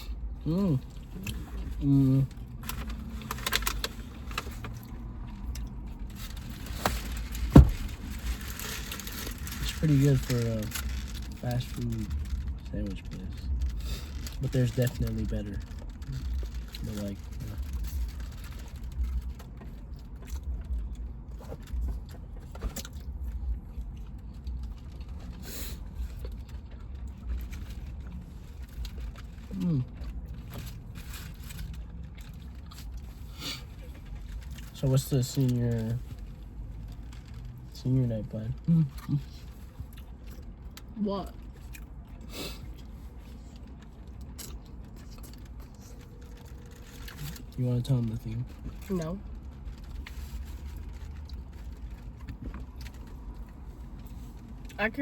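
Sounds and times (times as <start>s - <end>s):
low steady hum: 0.0s - 55.0s
dull thump: 7.4s - 8.0s
chewing: 8.2s - 35.4s, 38.5s - 54.8s.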